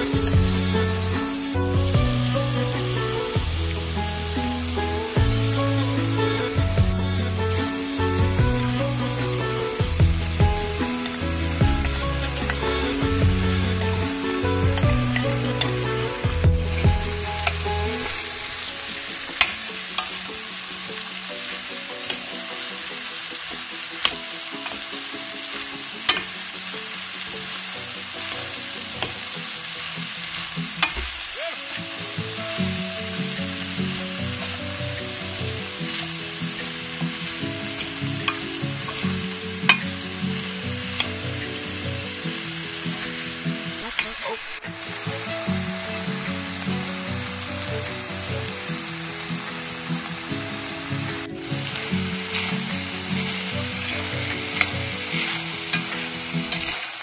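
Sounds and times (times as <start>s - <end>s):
meat and vegetables sizzling in a pan: 0.0s - 57.0s
utensil clicking against a pan: 26.1s - 26.4s.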